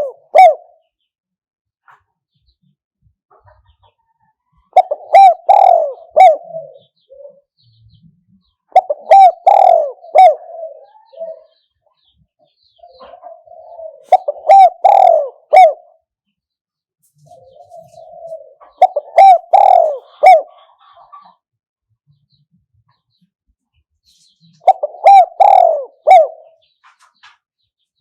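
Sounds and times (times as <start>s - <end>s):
dove cooing: 0.0s - 0.8s, 4.5s - 7.7s, 8.7s - 11.7s, 12.8s - 16.0s, 17.2s - 21.3s, 24.6s - 26.7s.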